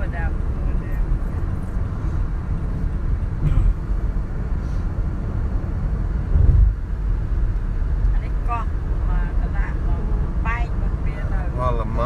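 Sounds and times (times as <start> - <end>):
car road and engine rumble: 0.0 - 12.0
car bump: 3.3 - 4.1.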